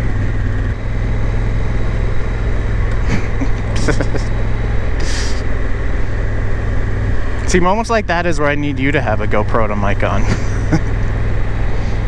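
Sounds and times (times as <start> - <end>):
wind rumble: 0.0 - 9.3
motorcycle engine: 0.0 - 12.0.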